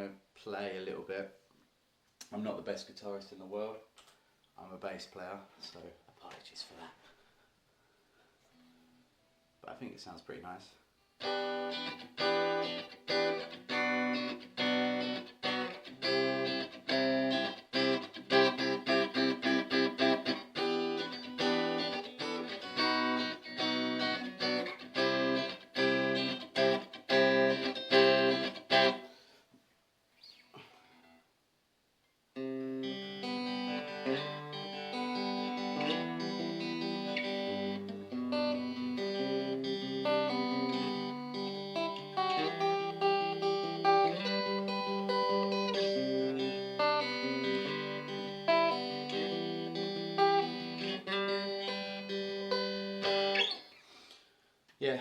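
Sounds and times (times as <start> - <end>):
electric guitar strummed chords: 11.2 - 29.0, 32.4 - 53.6.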